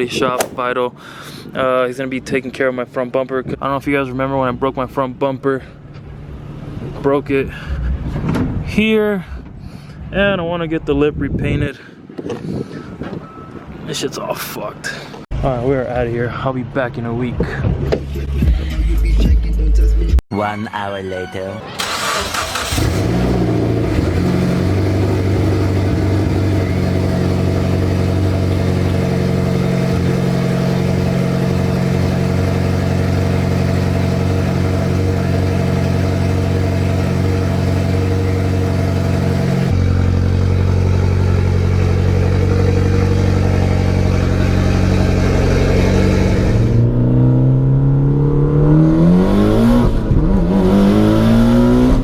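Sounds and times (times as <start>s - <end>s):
car engine accelerating hard: 21.8s - 52.0s
car engine cruising: 21.8s - 52.0s.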